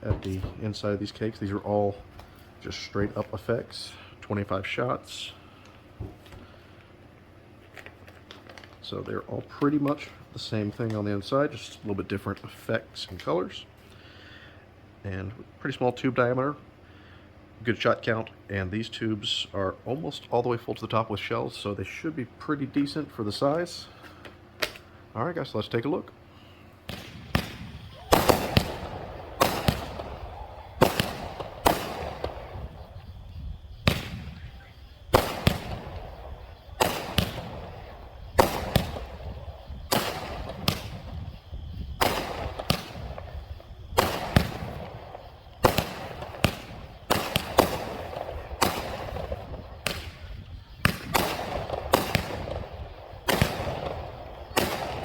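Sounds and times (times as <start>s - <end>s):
fireworks bangs: 0.0s - 6.4s, 26.8s - 55.0s.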